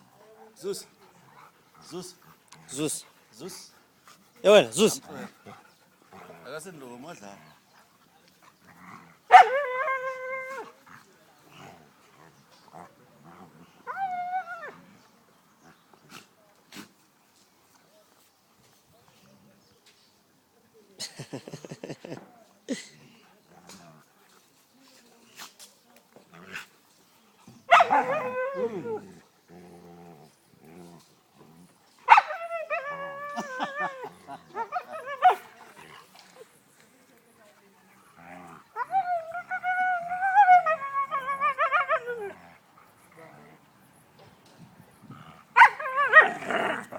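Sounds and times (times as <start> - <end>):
dogs growling: 4.6 - 13.9, 27.5 - 31.8, 37.9 - 43.8, 45.0 - 46.9
dogs whining yowls: 27.7 - 29.0.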